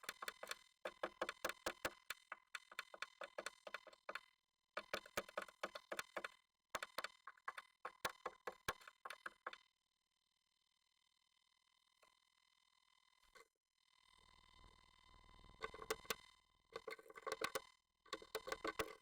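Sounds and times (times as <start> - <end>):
bird tapping inside nest box: 0.0 - 4.2, 4.8 - 9.6.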